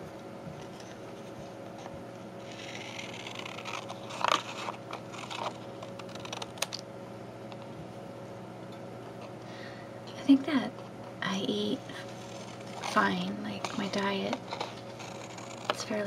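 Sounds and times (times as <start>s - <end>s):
card rustling: 2.5s - 6.8s, 12.0s - 16.0s.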